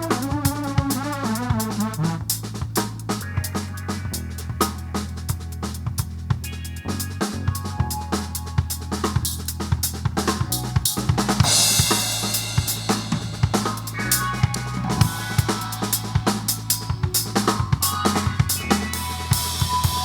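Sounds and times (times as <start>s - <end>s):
drum kit groove: 0.0s - 20.0s
low bass notes: 0.0s - 20.0s
cymbal wash: 11.4s - 20.0s.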